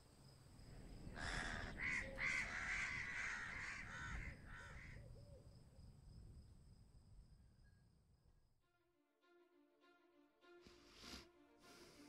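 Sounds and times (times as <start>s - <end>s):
bird giving raspy calls: 1.2s - 5.0s.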